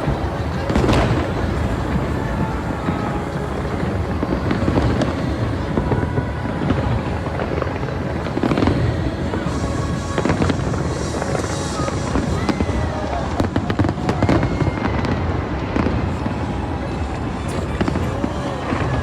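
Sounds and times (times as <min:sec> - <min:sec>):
sharp firework bangs: 0:00.0 - 0:05.3
fireworks booming: 0:00.0 - 0:16.5, 0:17.1 - 0:19.0.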